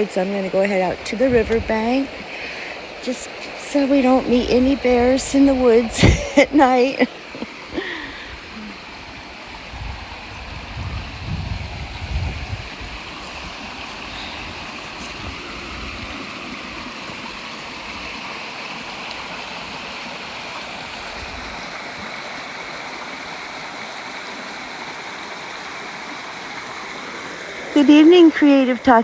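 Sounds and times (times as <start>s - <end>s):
river water flowing: 0.0s - 29.0s
low rumbling on microphone: 0.8s - 2.4s, 7.3s - 18.2s.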